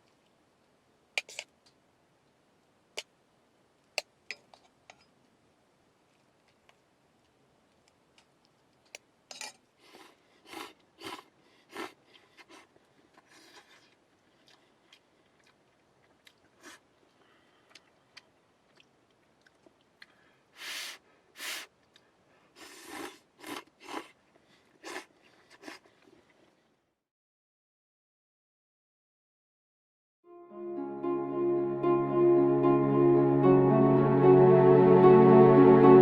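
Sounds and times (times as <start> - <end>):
person slurping noodles: 9.8 - 15.5, 16.6 - 16.8, 20.6 - 21.7, 22.6 - 24.2, 24.8 - 26.2
person chewing: 9.8 - 20.2, 21.6 - 26.5.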